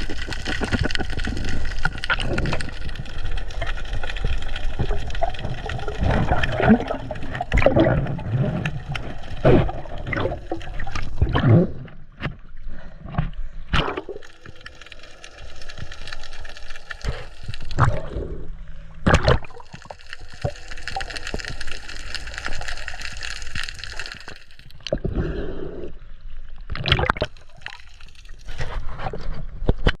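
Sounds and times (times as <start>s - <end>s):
water gurgling underwater: 0.0s - 12.9s, 13.7s - 25.9s, 26.6s - 29.0s.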